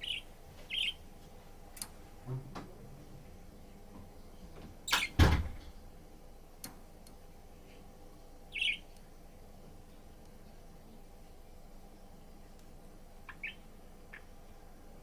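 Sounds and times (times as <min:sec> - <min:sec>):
budgerigar chirp: 0:00.0 - 0:01.0, 0:08.5 - 0:08.9, 0:13.3 - 0:14.3.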